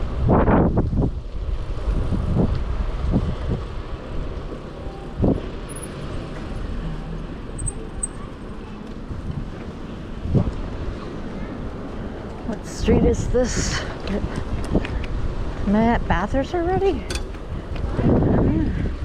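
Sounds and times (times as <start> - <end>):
bicycle road rumble: 0.0 - 19.0
wind while cycling: 0.0 - 19.0
car traffic: 3.8 - 12.7, 16.6 - 18.4
short thumps: 17.0 - 17.7.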